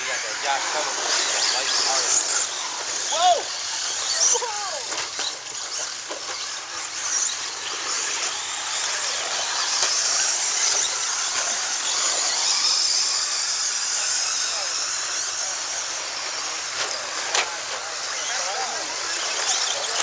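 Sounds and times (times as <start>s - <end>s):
rc trucks high-pitched whine: 0.0s - 20.0s.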